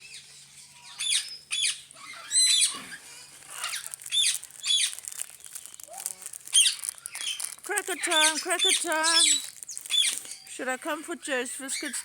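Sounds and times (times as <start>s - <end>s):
parrots squawking: 0.9s - 2.8s.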